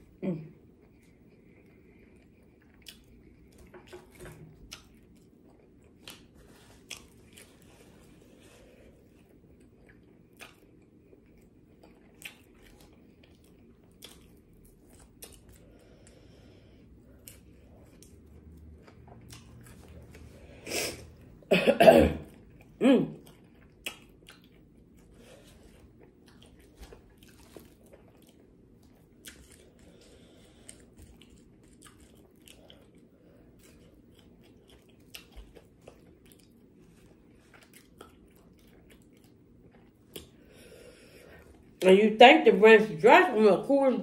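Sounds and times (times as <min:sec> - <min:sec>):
close chewing with wet clicks: 0:00.8 - 0:07.6, 0:09.2 - 0:16.4, 0:17.0 - 0:20.3, 0:22.4 - 0:40.6
person coughing: 0:21.5 - 0:23.2.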